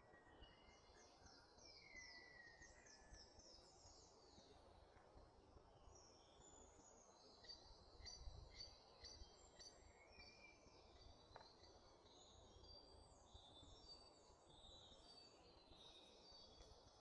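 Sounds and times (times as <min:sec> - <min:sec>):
woodland birdsong: 0:00.0 - 0:17.0.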